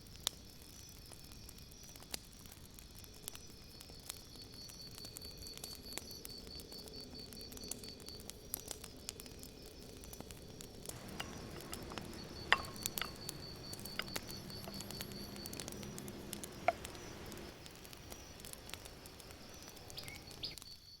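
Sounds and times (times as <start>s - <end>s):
campfire crackling and popping: 2.0s - 20.9s
insect trilling: 10.9s - 20.8s
sharp clinks: 11.0s - 17.5s.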